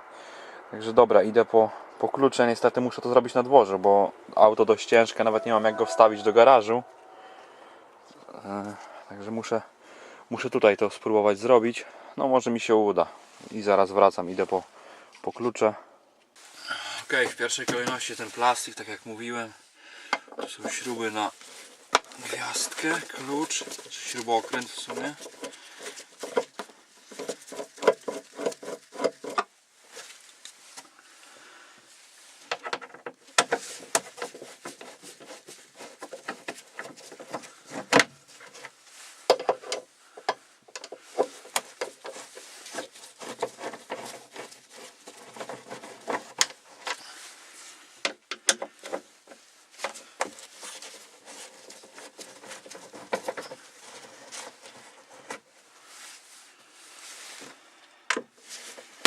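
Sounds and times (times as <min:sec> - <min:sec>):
pulsing squeaky tone: 0:05.2 - 0:07.4.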